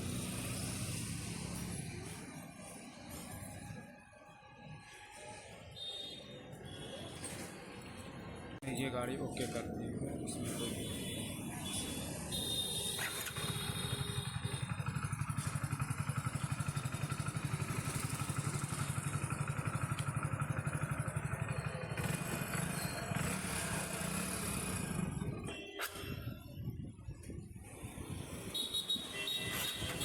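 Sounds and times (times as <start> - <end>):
motorcycle engine idling: 12.1 - 25.5.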